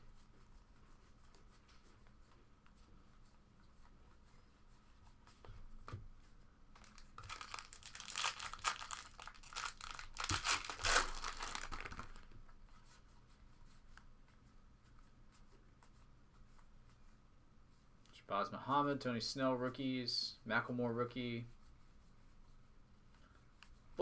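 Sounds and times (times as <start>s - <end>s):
wrapper tearing and crinkling: 6.8s - 12.4s.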